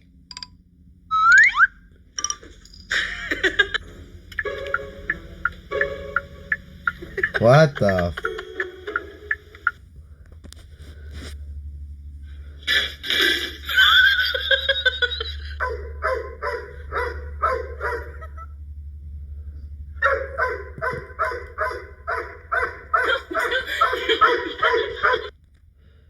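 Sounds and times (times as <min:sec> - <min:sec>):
dog barking: 0:15.6 - 0:18.4, 0:20.0 - 0:25.3.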